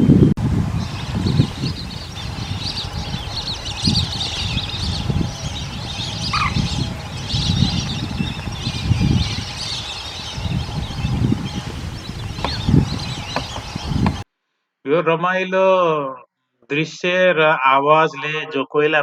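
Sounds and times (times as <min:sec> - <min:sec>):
low rumbling: 0:00.0 - 0:14.2
waterbirds calling: 0:00.0 - 0:14.2.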